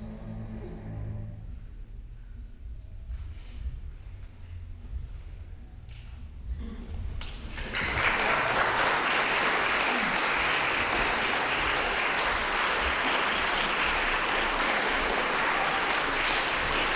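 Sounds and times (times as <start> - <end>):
audience applause: 7.3 - 16.9.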